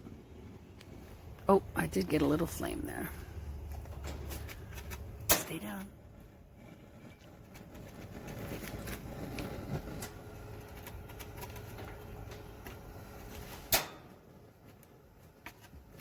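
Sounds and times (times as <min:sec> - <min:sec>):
sharp igniter snap: 0:04.2 - 0:06.0, 0:13.5 - 0:14.2.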